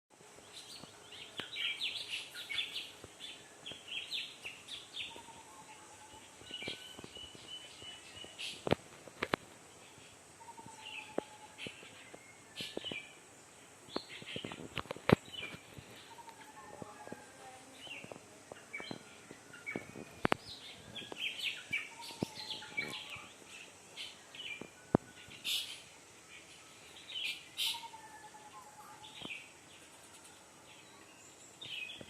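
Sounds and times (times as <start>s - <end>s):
birds chirping: 0.4s - 32.0s.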